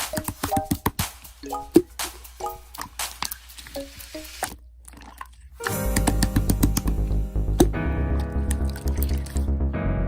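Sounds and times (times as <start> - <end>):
music with bass beat: 0.0 - 3.3.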